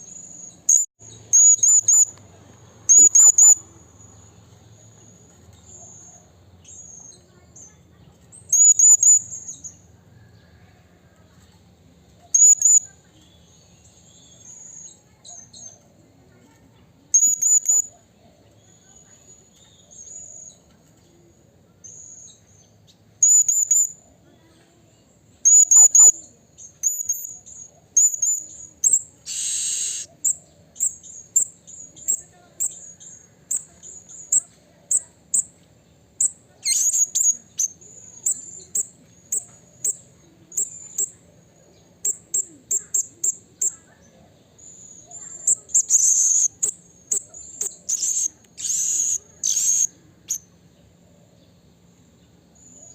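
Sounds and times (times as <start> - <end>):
parrot shrill calls: 29.3 - 30.1, 45.4 - 50.4.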